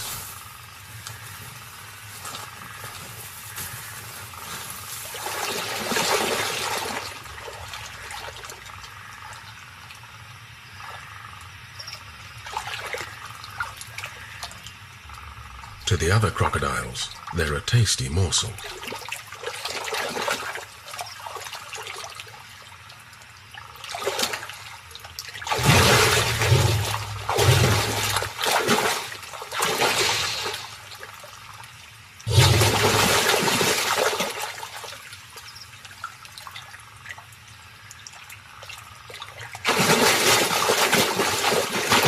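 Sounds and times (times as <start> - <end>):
crocodiles thrashing in water: 5.0 - 8.6, 25.3 - 31.2, 32.3 - 35.1, 39.2 - 42.0.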